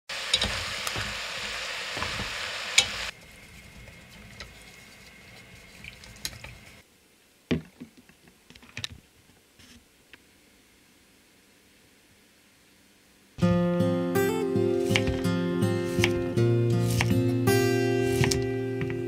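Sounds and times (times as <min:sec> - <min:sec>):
meat and vegetables sizzling: 0:00.1 - 0:06.8, 0:13.4 - 0:19.0
stirring simmering soup: 0:03.1 - 0:06.8.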